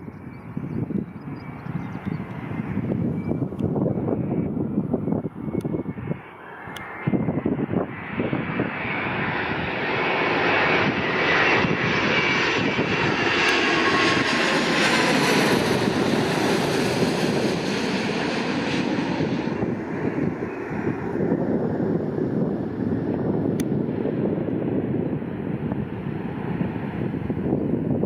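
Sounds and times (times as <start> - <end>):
jet airliner passing: 0.0 - 28.0
wind buffeting microphone: 0.0 - 28.0.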